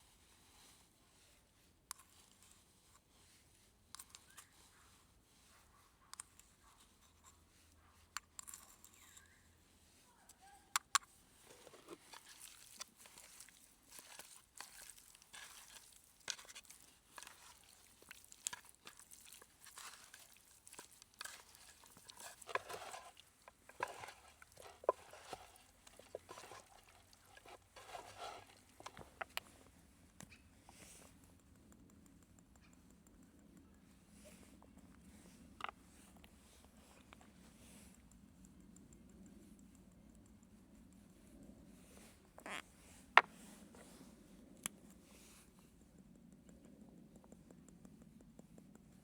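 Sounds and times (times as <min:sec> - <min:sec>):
crunching and rustling: 0:11.4 - 0:29.6
handling clicks and taps: 0:27.1 - 0:36.4, 0:45.8 - 0:49.0.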